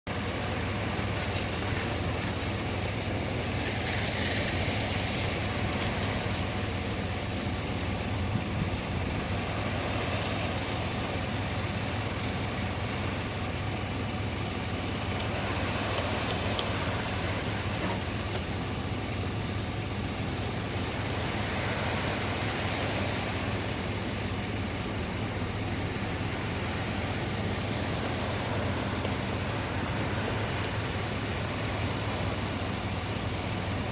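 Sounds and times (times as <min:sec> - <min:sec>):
sea waves washing ashore: 0:00.1 - 0:33.9
wind rumble on microphone: 0:03.5 - 0:10.8.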